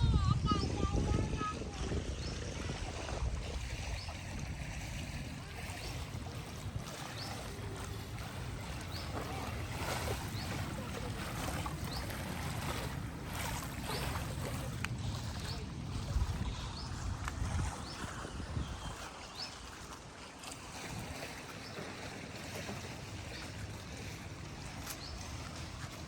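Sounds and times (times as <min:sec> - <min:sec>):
sea surf washing onto beach: 0:00.0 - 0:18.0
wind rumbling on microphone: 0:00.0 - 0:20.0, 0:20.6 - 0:21.4.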